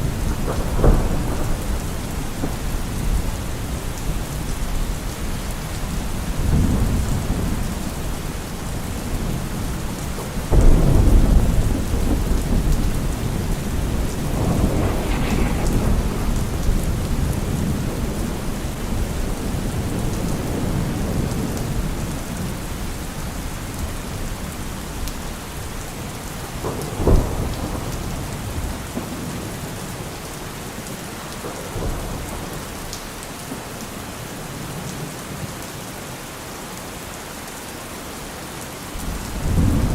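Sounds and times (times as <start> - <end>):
thunder clap rumbling: 0.0 - 4.9, 5.9 - 22.9, 39.0 - 39.9
steady rain falling: 0.0 - 39.9
sharp thunder crack: 10.5 - 20.0.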